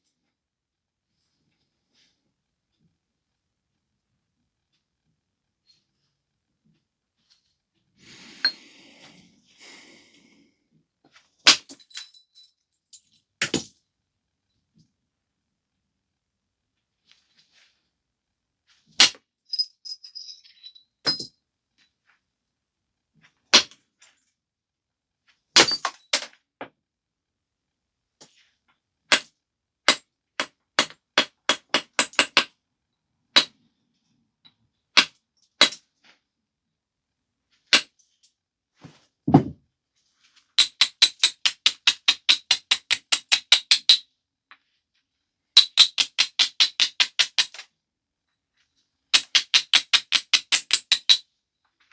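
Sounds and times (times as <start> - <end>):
dull thump: 39.3 - 39.6.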